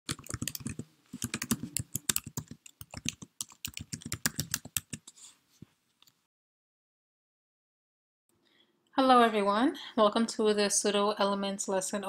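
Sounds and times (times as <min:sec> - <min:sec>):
rapid typing on keyboard: 0:00.1 - 0:05.2.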